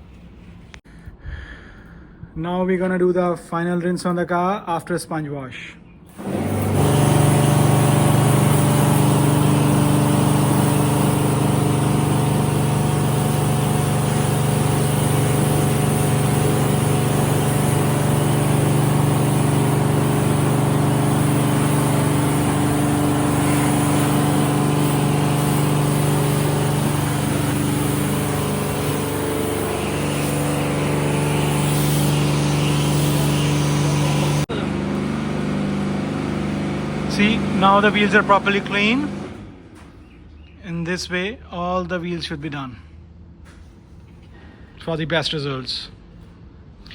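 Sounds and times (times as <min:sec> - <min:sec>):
water jet spraying: 0:06.1 - 0:39.4
pressure washer motor hum: 0:06.1 - 0:40.0.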